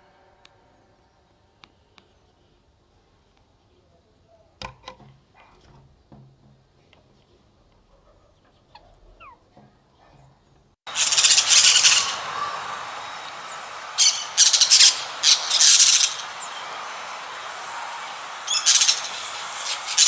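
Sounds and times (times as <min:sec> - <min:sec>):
parrots squawking: 0:08.4 - 0:09.5, 0:10.9 - 0:20.0
steady hiss: 0:10.9 - 0:20.0.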